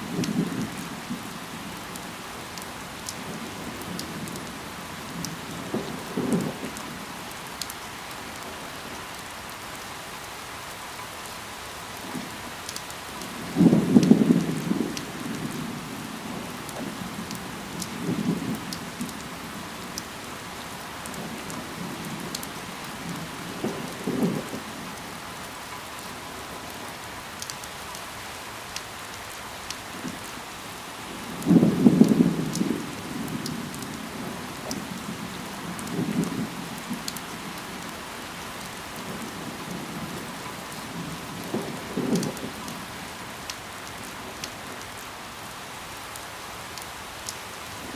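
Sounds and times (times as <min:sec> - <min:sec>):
rain falling on leaves: 0:00.0 - 0:47.9.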